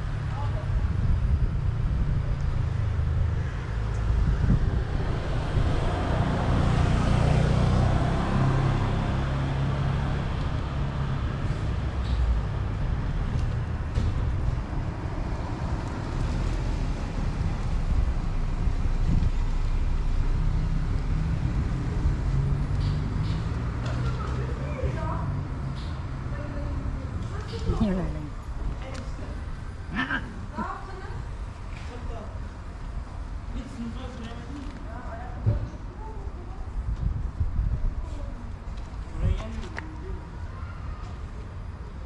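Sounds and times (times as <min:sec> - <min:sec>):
road traffic rumble: 0:00.0 - 0:42.0
vehicle passing: 0:01.4 - 0:34.2.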